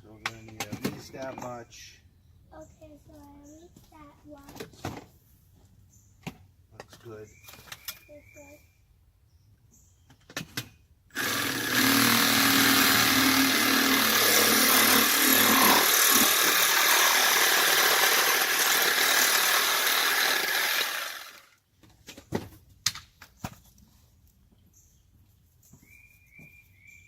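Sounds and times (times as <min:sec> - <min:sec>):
power saw cutting plastic pipe: 0:11.1 - 0:21.5.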